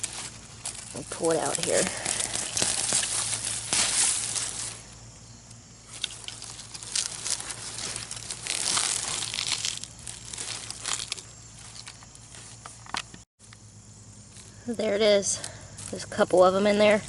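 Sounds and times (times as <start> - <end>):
dry plant stems crackling and crunching: 0.0 - 13.2, 14.2 - 17.0.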